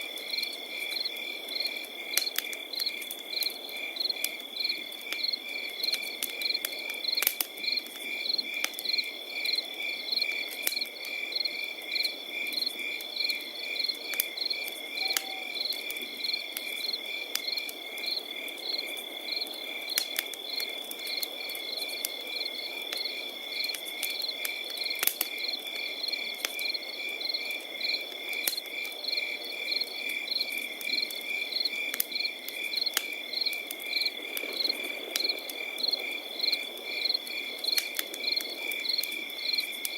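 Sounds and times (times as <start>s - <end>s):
campfire crackling: 0.0s - 39.9s
crickets trilling: 0.0s - 39.9s.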